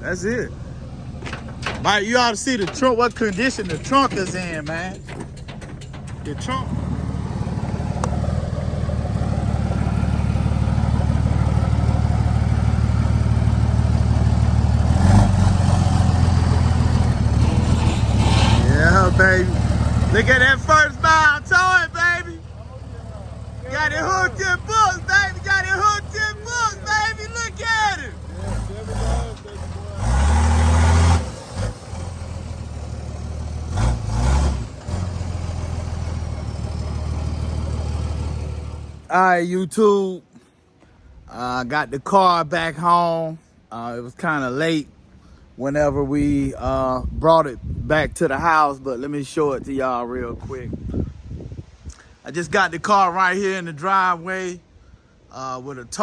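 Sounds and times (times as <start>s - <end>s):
truck engine idling: 0.0s - 39.1s.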